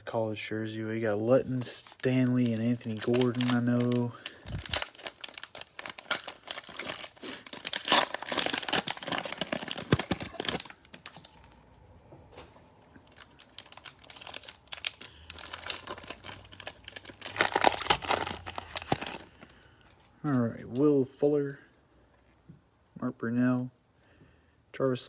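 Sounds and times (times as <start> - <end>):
plastic wrapper crinkling and tearing: 1.5 - 11.6, 13.0 - 20.1.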